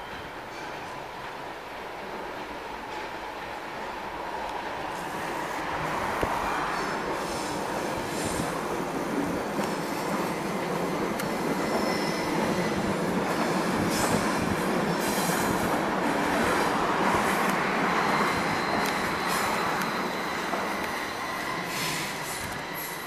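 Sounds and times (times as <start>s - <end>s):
train wheels squealing: 9.8s - 23.0s.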